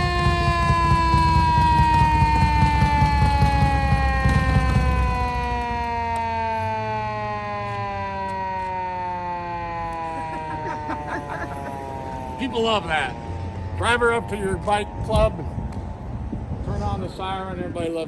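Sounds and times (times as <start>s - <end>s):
motorcycle engine rumbling: 0.0s - 7.8s
police siren wailing: 0.0s - 16.6s.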